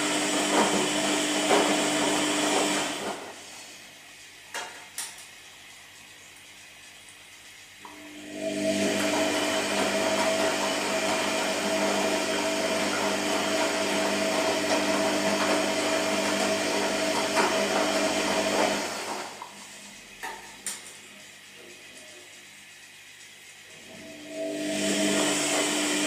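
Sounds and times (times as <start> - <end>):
small appliance motor whining: 7.9 - 19.4, 23.4 - 26.0.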